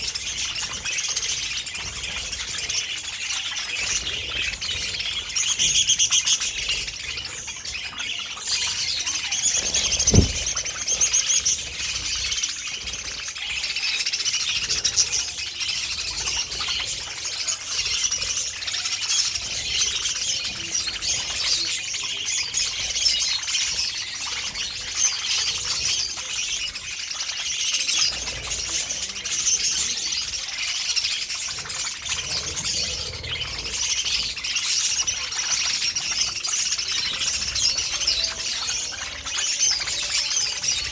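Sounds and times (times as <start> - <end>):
budgerigars chattering and chirping: 0.0 - 40.9
low thump: 9.8 - 10.7.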